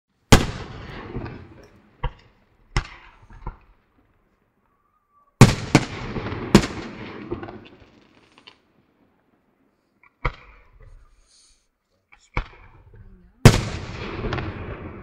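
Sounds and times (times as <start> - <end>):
firework shells bursting: 5.4 - 8.7.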